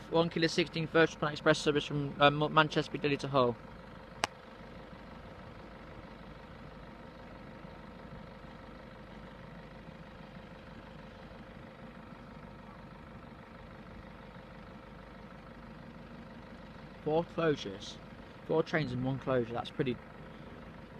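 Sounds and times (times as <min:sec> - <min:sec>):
vehicle engine idling: 0:00.0 - 0:20.9.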